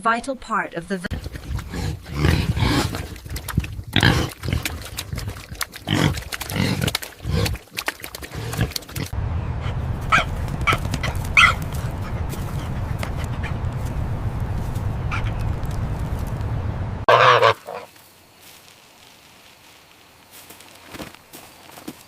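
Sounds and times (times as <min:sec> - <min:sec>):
farm animals calling: 0:08.4 - 0:13.8, 0:17.1 - 0:17.9.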